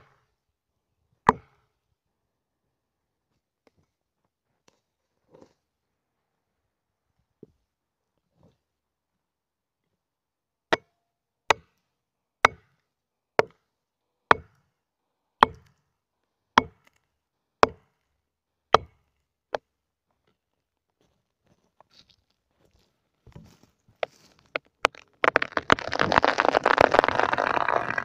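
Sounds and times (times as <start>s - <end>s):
axe chopping wood: 1.3s - 1.6s, 15.4s - 15.7s.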